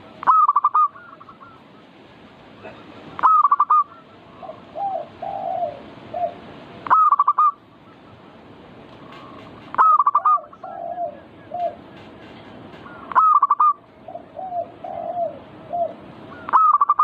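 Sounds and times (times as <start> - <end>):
soft low dove coos: 2.6 - 7.6, 9.0 - 11.8, 13.0 - 17.0
doves staccato cooing: 2.6 - 8.3, 8.9 - 17.0.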